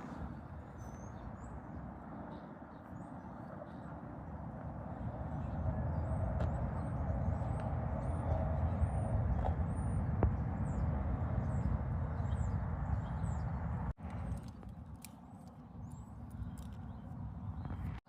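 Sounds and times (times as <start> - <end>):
highway traffic rumble: 0.0 - 18.0
small birds chirping: 0.0 - 18.0.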